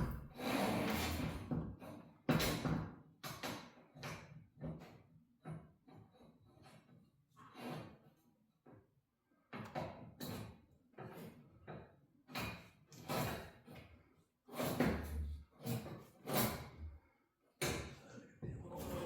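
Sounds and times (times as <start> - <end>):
dull thud: 0.0 - 0.3.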